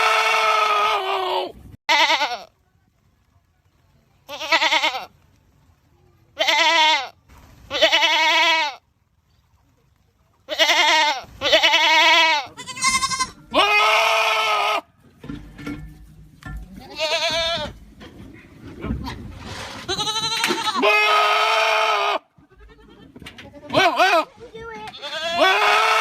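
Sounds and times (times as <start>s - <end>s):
goats bleating loudly: 0.0s - 2.5s, 4.3s - 5.1s, 6.4s - 8.8s, 10.5s - 14.9s, 16.8s - 17.8s, 19.8s - 26.0s.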